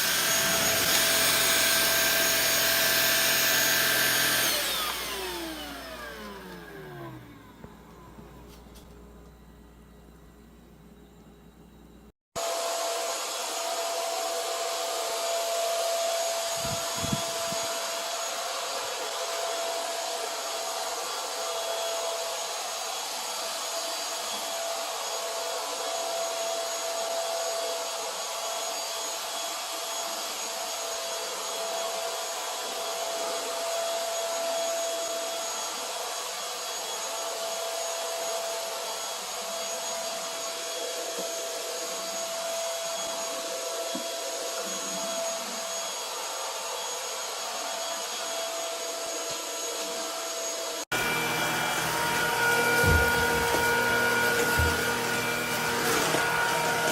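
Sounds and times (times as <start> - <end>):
stick vacuum running: 0.0 - 9.0, 47.1 - 56.9.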